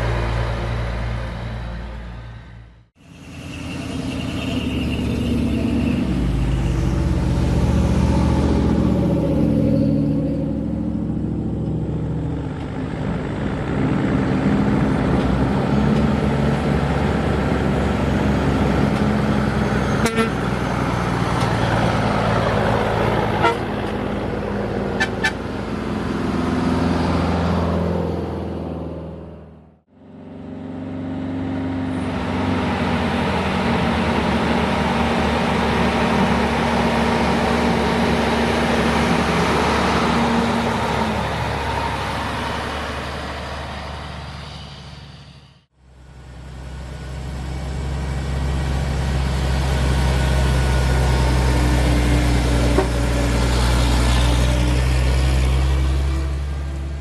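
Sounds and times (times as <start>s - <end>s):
heavy truck diesel engines: 0.0s - 57.0s
truck horn toots: 19.8s - 20.7s, 23.3s - 23.9s, 25.0s - 25.4s.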